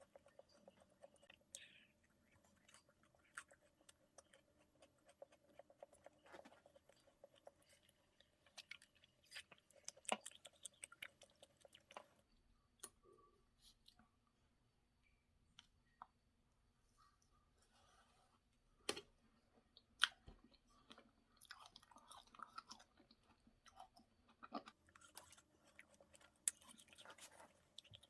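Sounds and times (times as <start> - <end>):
chewing crunches: 0.0 - 12.1, 20.0 - 28.0.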